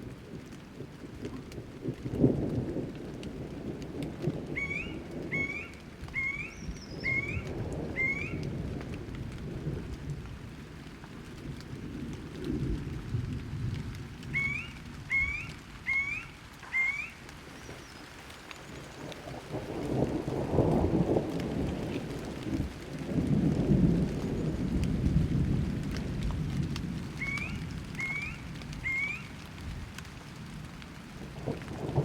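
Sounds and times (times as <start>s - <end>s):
rain: 0.0s - 32.0s
thunder rumbling: 0.0s - 32.0s
bird chirping: 4.6s - 8.4s, 14.4s - 19.0s.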